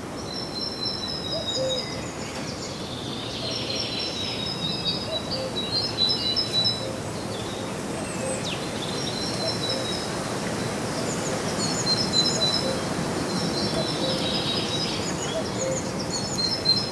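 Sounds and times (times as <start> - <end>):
songbirds chirping: 0.0 - 16.9.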